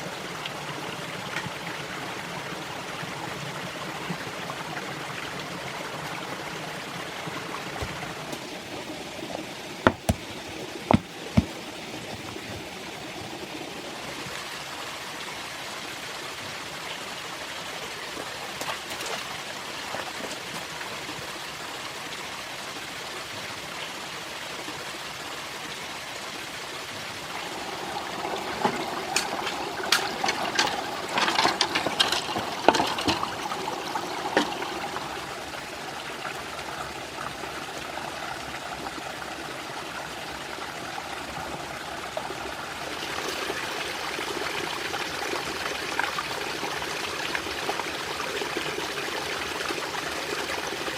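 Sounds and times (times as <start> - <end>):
stream water rushing: 0.0 - 50.9
sharp knocks and clicks: 7.8 - 8.6, 9.3 - 12.7.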